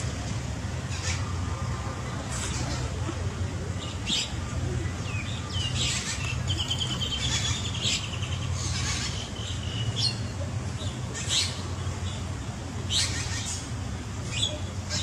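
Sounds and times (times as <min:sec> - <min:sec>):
steady low hum: 0:00.0 - 0:15.0
small birds chirping: 0:03.7 - 0:15.0.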